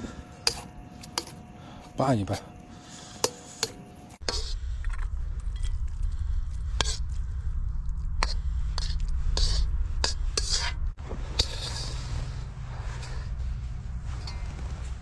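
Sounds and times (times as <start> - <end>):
steady low hum: 0.0 - 15.0
spoon scraping cookware: 11.4 - 12.0.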